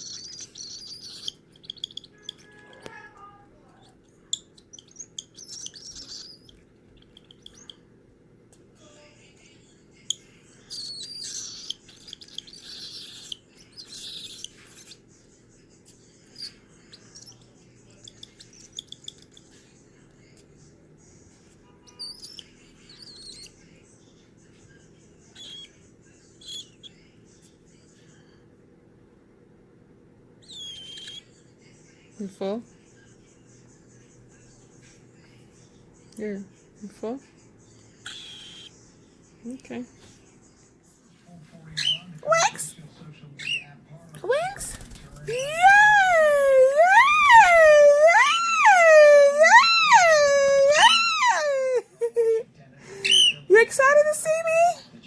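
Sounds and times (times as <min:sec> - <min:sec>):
bird chick chirping: 0:00.0 - 0:07.8, 0:10.1 - 0:15.0, 0:44.3 - 0:51.8.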